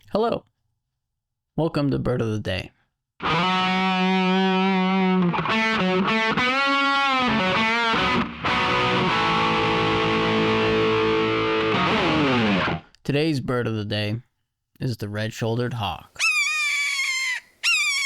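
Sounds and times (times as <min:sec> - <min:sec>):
distorted electric guitar: 0:03.2 - 0:12.9.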